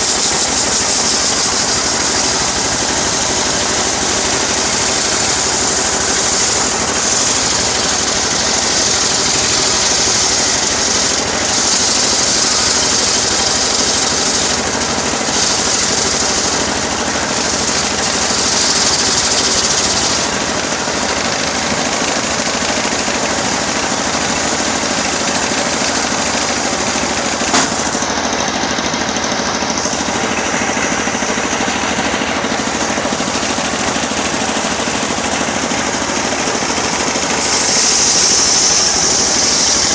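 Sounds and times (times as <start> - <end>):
engine-driven sawmill running: 0.0 - 39.9
sharp click: 27.4 - 28.1.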